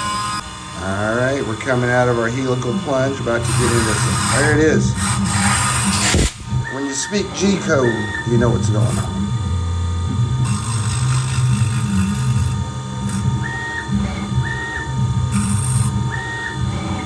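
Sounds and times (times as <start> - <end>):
short high whines: 0.0 - 9.2
hissing: 0.0 - 17.0
mill motor hum: 0.0 - 17.0.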